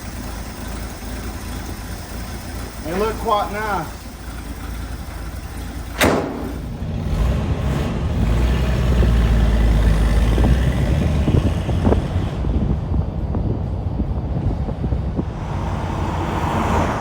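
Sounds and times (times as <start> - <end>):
pickup engine idling: 0.0 - 8.3
heavy low rumble: 10.4 - 17.0.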